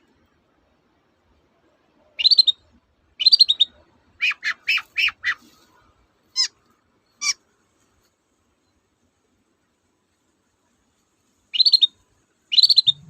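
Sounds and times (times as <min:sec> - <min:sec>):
shrike chattering song: 0:11.6 - 0:13.0.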